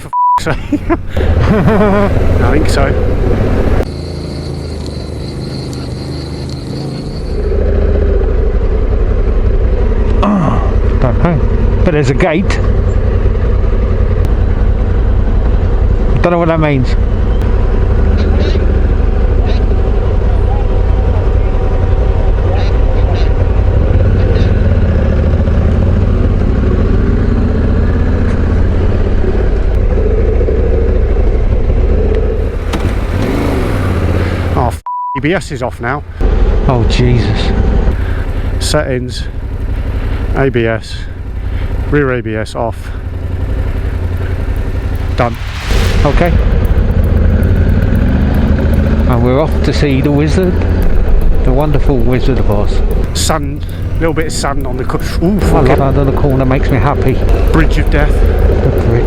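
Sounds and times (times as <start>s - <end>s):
motorcycle engine: 0.8s - 34.8s, 35.5s - 59.0s
wind noise: 0.9s - 3.9s.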